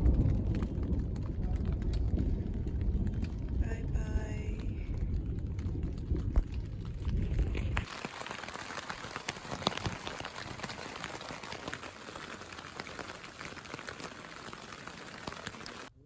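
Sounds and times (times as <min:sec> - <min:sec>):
low rumble: 0:00.0 - 0:07.9
heavy rain on tent fabric: 0:00.0 - 0:16.0.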